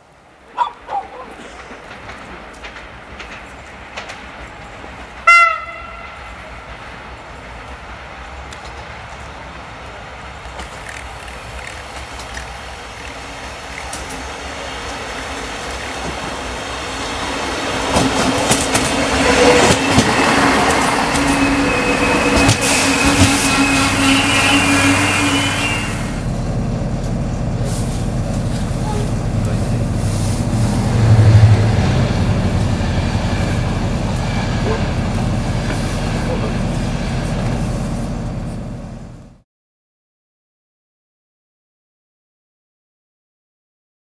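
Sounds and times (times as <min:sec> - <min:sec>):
train rumble: 0:00.1 - 0:39.4
wheels clattering over rail joints: 0:01.2 - 0:05.8, 0:10.3 - 0:23.9
train horn blast: 0:05.2 - 0:06.4, 0:19.1 - 0:26.2, 0:28.7 - 0:29.3, 0:33.6 - 0:35.2.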